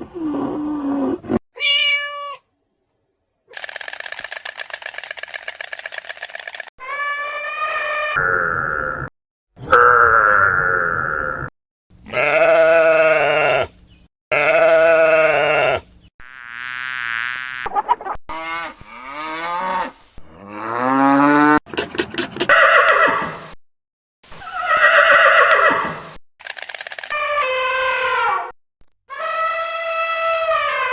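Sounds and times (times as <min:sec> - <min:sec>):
farm animal calls: 0:12.0 - 0:16.0.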